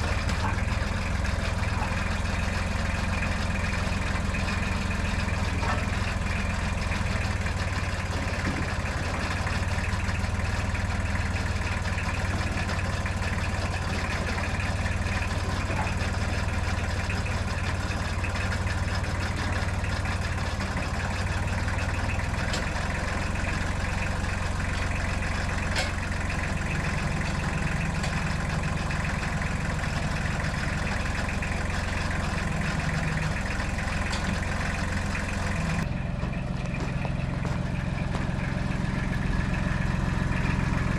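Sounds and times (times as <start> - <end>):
tractor engine idling: 0.0 - 40.9.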